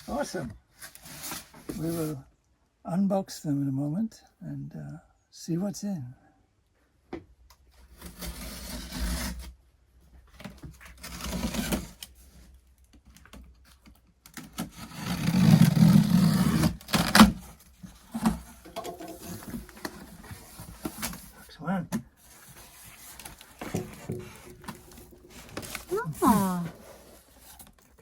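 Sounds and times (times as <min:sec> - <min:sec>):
cardboard box scraping and tearing: 0:07.9 - 0:09.6, 0:10.7 - 0:12.4, 0:14.4 - 0:21.4, 0:22.2 - 0:27.8
small knocks: 0:18.2 - 0:20.1, 0:23.6 - 0:25.9.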